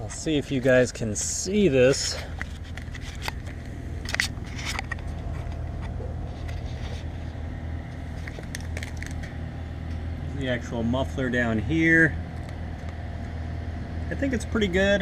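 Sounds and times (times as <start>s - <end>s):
car engine idling: 0.0s - 15.0s
light clicks and scrapes: 1.9s - 9.4s.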